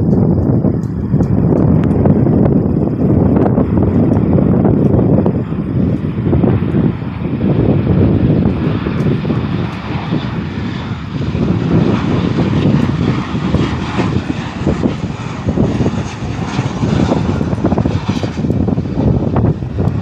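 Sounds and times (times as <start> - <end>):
airplane engines running: 0.0 - 20.0
wind buffeting microphone: 0.0 - 20.0.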